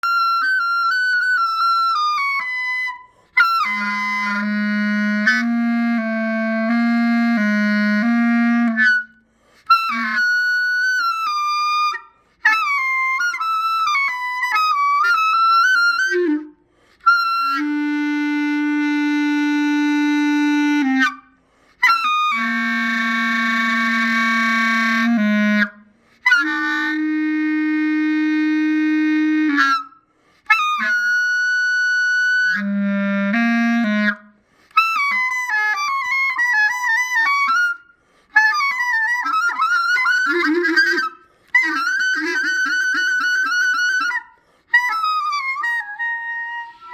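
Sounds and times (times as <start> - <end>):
solo clarinet sliding pitches: 0.0 - 46.9.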